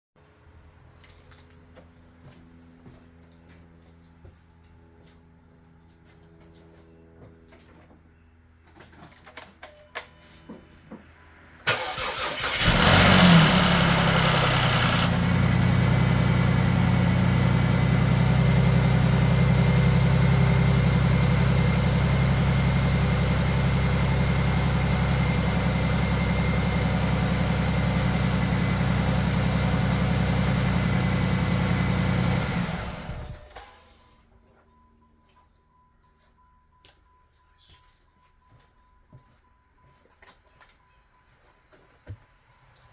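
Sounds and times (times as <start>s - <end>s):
car engine starting and idling: 11.6s - 33.6s.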